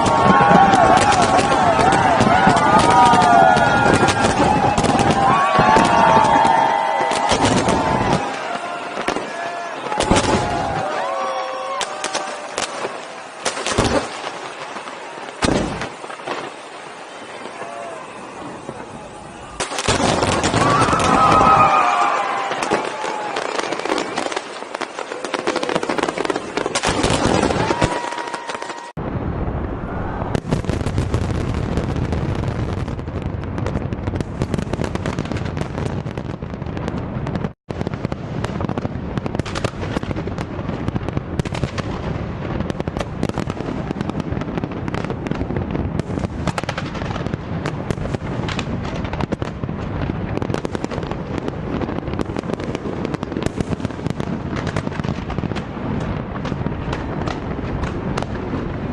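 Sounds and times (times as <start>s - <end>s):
firework whistle: 0.0s - 29.0s
fireworks bangs and crackling: 0.0s - 58.9s.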